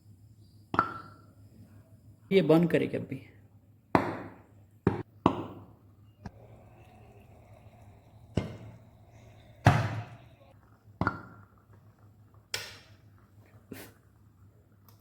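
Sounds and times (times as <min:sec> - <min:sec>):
hydrogen gas popping: 0:04.0 - 0:11.9.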